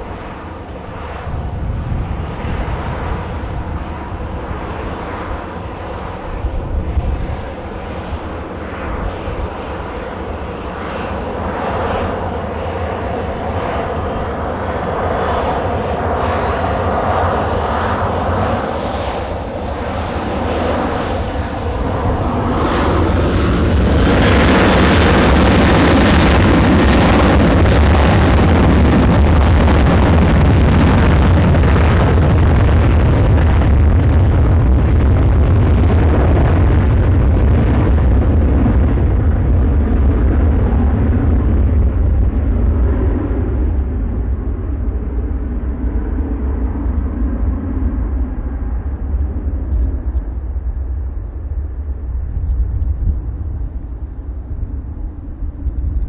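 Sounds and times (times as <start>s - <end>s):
airliner engines on takeoff: 0.0s - 56.0s.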